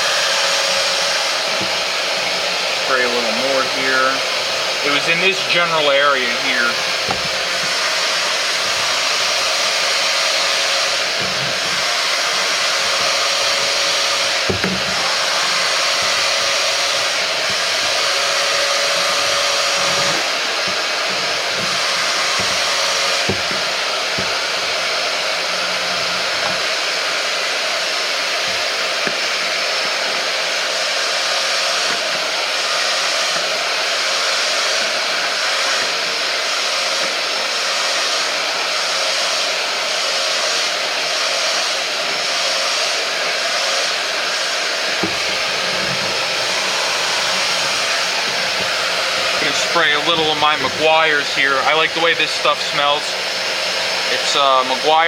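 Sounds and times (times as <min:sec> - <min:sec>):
carpet cleaner motor suction whoosh: 0:00.0 - 0:55.0
nozzle bumping on carpet: 0:01.5 - 0:02.4, 0:06.9 - 0:25.0, 0:45.0 - 0:49.5.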